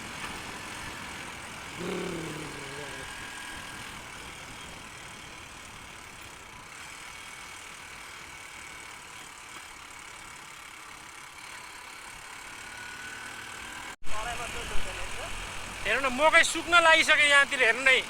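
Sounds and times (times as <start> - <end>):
road noise: 0.0 - 18.0
motorcycle engine: 0.2 - 7.2.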